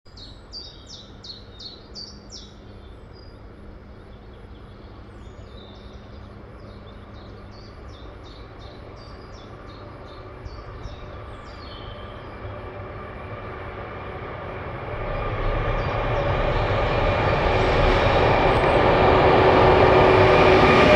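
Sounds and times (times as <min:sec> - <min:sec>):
distant freight train rumble: 0:00.1 - 0:20.9.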